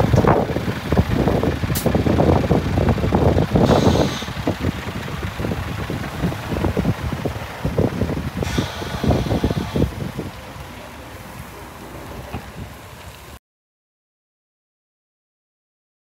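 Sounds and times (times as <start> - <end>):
diesel truck engine running: 0.0 - 13.4
short hiss: 3.7 - 4.4, 8.4 - 9.9.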